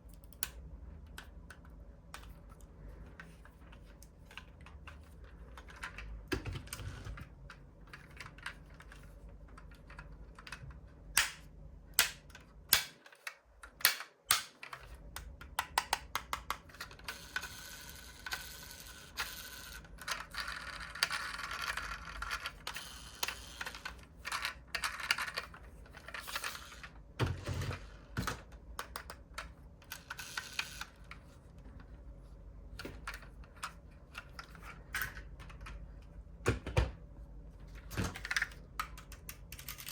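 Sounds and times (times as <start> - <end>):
clicks and taps of model cars: 12.0 - 16.7.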